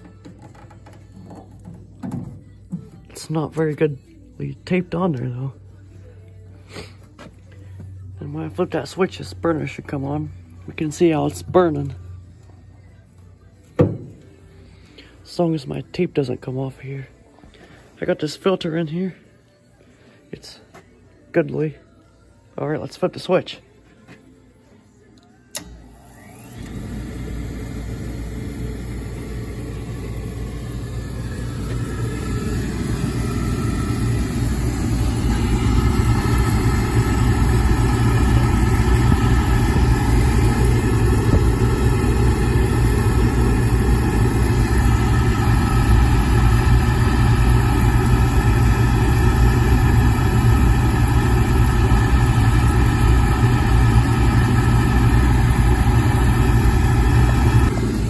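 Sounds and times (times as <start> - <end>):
oil furnace burner rumbling: 26.4 - 58.0.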